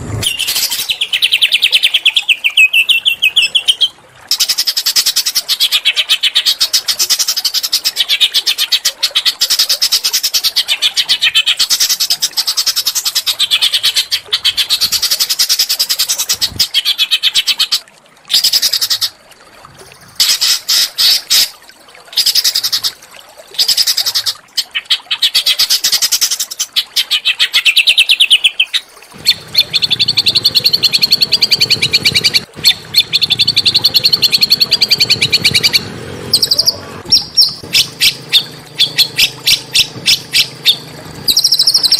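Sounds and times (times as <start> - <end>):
small songbird trilling: 27.7 - 41.9.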